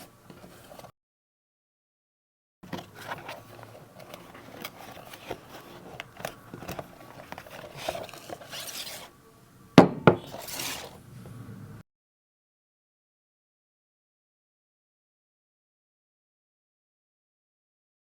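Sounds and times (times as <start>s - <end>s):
box rubbing and scraping: 0.0s - 0.9s, 2.8s - 9.2s, 9.9s - 11.3s.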